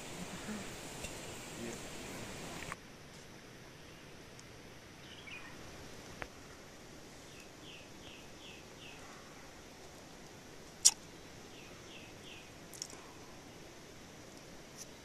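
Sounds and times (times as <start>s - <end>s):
bird chirping: 0.0s - 2.8s, 5.0s - 5.7s, 7.2s - 9.7s, 10.8s - 12.5s
background hiss: 0.0s - 15.0s.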